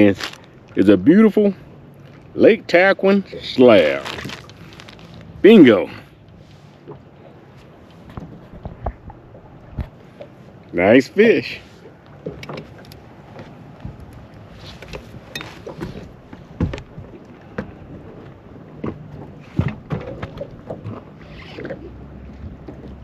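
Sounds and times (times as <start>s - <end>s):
rush of water: 0.0s - 23.0s
knocks and clicks on boat: 6.8s - 10.4s, 11.8s - 23.0s
water slapping against boat hull: 6.8s - 10.5s, 11.7s - 23.0s.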